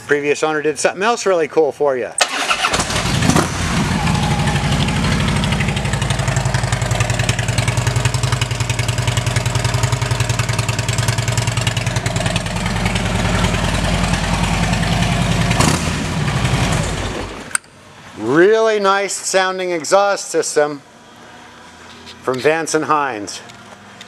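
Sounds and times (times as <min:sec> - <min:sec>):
motorcycle engine idling: 0:02.8 - 0:17.2.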